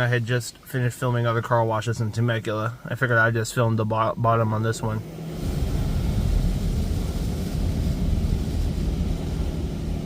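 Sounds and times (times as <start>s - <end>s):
car wash rumbling: 0.0s - 10.0s
hiss of spray: 5.3s - 10.0s.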